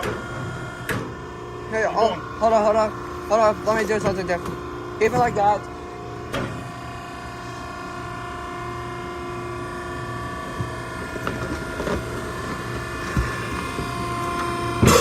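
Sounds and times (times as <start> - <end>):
hydraulic unit humming: 0.0 - 15.0.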